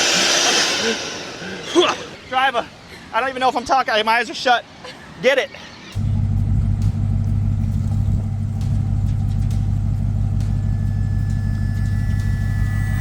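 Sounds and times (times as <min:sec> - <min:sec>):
faint high whine: 0:06.0 - 0:13.0
truck engine low drone: 0:06.0 - 0:13.0.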